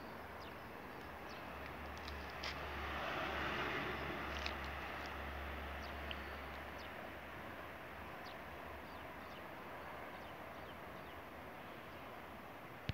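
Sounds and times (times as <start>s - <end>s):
small birds chirping: 0.0s - 2.7s, 3.9s - 7.1s, 8.1s - 12.2s
distant engine hum: 0.0s - 12.9s.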